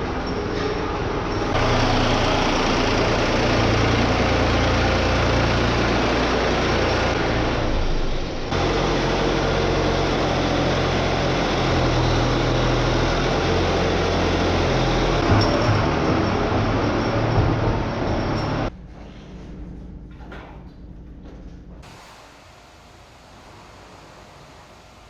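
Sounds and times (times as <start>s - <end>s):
vehicle engine running: 1.5s - 18.7s.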